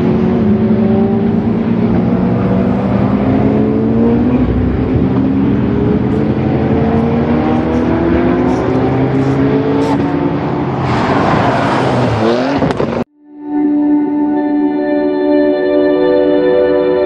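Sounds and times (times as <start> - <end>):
car engine accelerating: 0.0 - 13.1.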